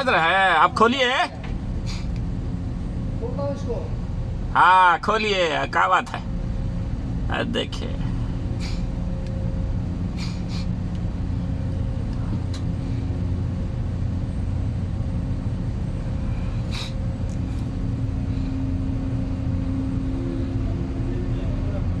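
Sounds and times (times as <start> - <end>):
blower low rumble and hum: 0.0 - 22.0.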